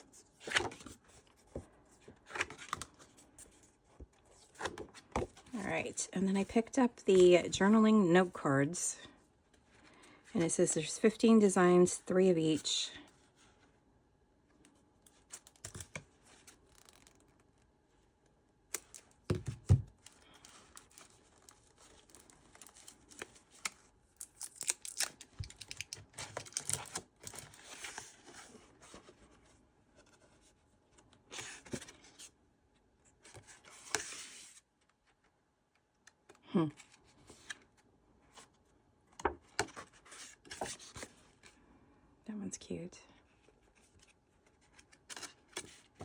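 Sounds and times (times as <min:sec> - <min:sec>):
packaging crinkling and tearing: 0:20.0 - 0:27.9.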